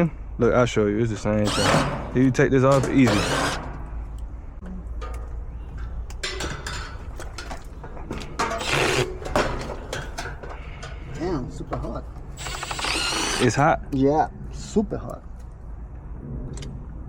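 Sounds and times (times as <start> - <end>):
tools clicking and rattling: 4.9 - 13.5.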